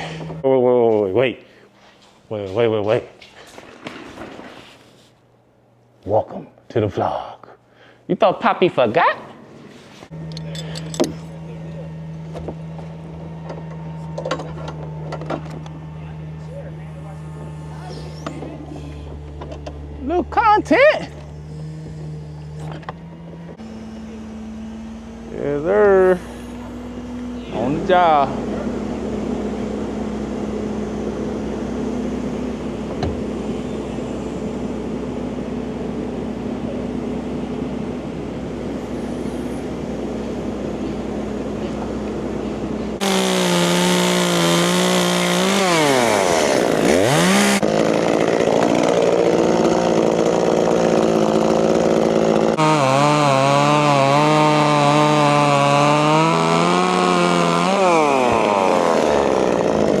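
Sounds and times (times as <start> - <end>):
chainsaw cutting wood: 0.0 - 0.4, 43.0 - 60.0
low engine drone: 10.1 - 47.6.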